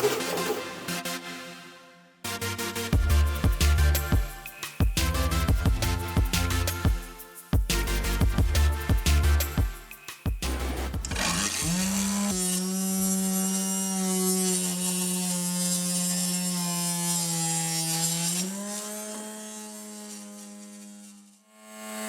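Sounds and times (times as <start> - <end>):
saw blade cutting wood: 11.0 - 22.0
table saw motor whine: 11.1 - 22.0.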